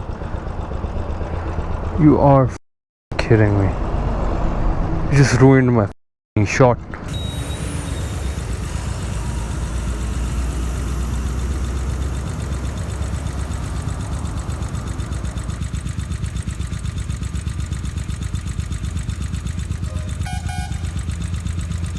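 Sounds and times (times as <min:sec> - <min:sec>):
engine idling: 0:00.0 - 0:02.2, 0:07.1 - 0:21.9.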